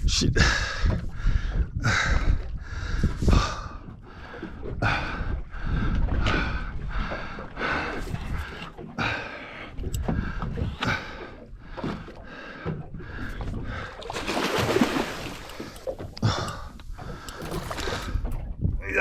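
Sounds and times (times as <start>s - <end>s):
water splashing: 13.8s - 18.5s.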